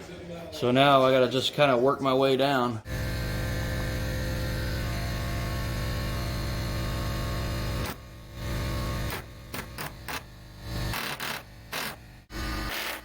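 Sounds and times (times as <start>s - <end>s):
power tool cutting metal panel: 2.9s - 13.0s.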